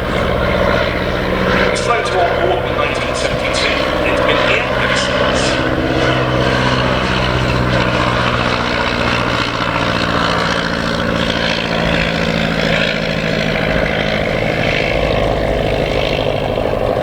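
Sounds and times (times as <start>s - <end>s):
rough rushing noise: 0.0s - 8.2s
biplane engine droning: 0.0s - 17.0s.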